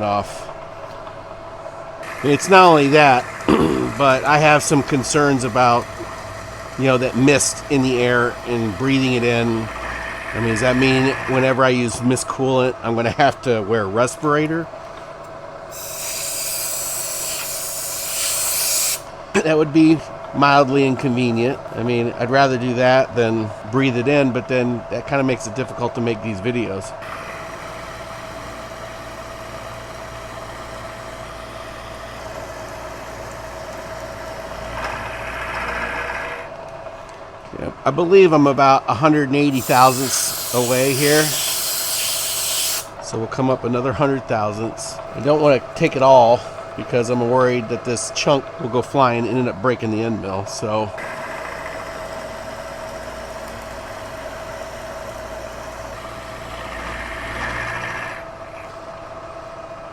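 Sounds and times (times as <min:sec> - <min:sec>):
milling machine motor hum: 0:01.9 - 0:12.8, 0:15.7 - 0:19.3, 0:27.0 - 0:36.6, 0:39.5 - 0:43.0, 0:50.9 - 0:59.8
end mill grinding metal: 0:02.0 - 0:12.7, 0:15.7 - 0:19.0, 0:39.5 - 0:42.9.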